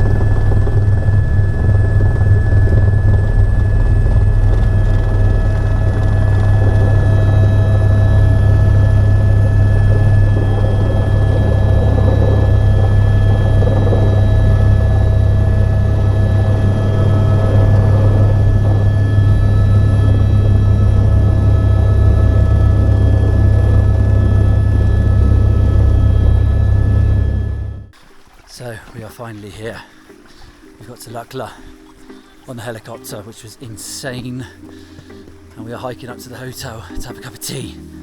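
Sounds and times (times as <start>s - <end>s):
helicopter rotor drone: 0.0s - 28.0s
high whining tones: 0.0s - 28.0s.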